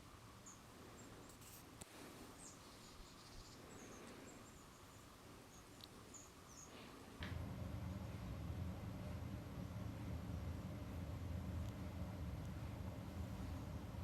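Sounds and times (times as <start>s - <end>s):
outdoor background hiss: 0.0s - 14.0s
small birds chirping: 0.3s - 1.4s, 2.2s - 7.2s
low rumbling noise: 7.2s - 14.0s.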